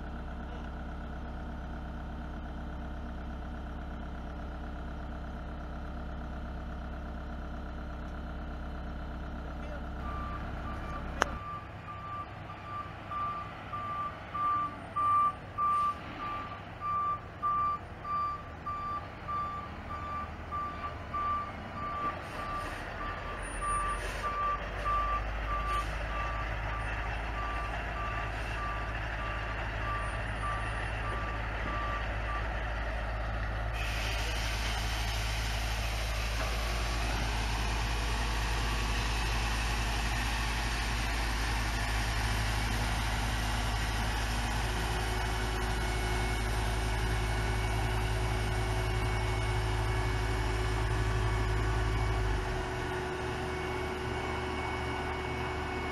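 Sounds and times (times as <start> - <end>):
heavy engines running: 0.0 - 55.9
truck reverse alarm beeping: 10.0 - 33.1, 42.2 - 55.9.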